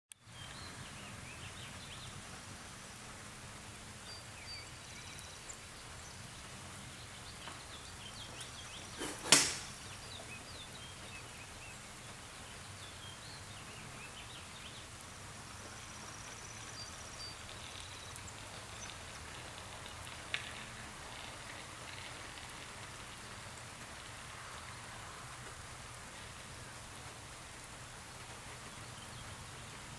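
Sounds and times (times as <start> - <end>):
light rain falling: 0.1 - 29.9
faint high ticks: 17.4 - 20.6.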